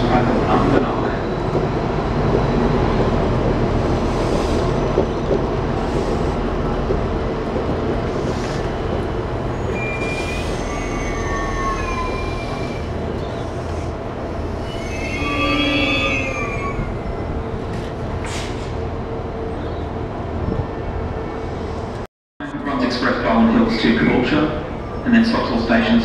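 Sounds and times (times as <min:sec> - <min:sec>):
train carriages rumbling: 0:00.0 - 0:26.0
high-pitched wheel squeals: 0:09.6 - 0:13.4, 0:14.6 - 0:17.4.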